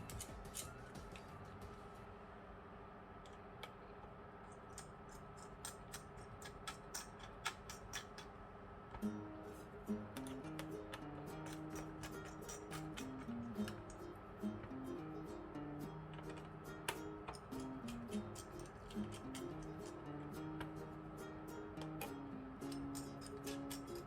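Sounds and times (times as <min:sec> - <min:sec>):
quiet background music: 0:00.0 - 0:24.0.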